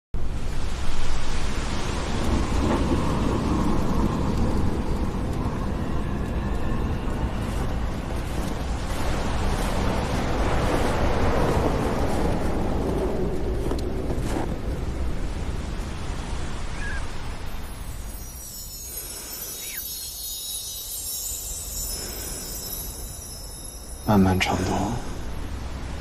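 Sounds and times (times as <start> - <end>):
rushing blizzard wind: 0.2 - 26.0.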